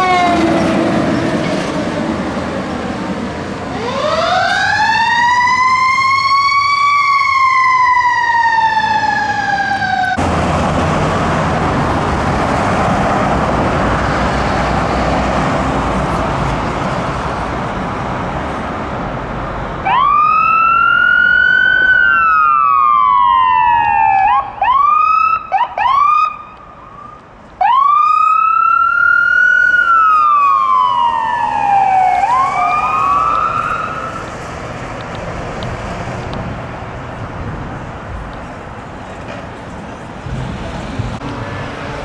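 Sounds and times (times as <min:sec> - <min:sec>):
ambulance siren wailing: 0:00.0 - 0:01.1, 0:03.6 - 0:11.0, 0:19.8 - 0:40.2
road traffic noise: 0:00.0 - 0:42.0.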